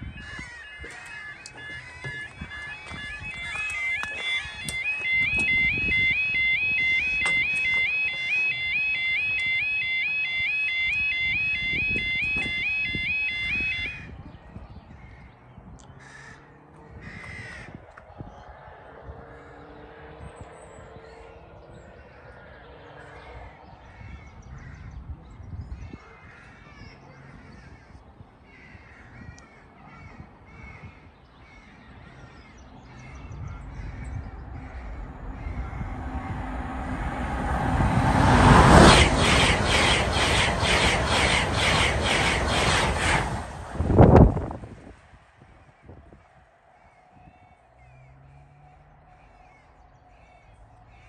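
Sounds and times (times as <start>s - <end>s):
birds calling: 0.0s - 43.1s, 45.6s - 51.0s
train passing at speed: 17.8s - 24.4s, 32.7s - 46.6s.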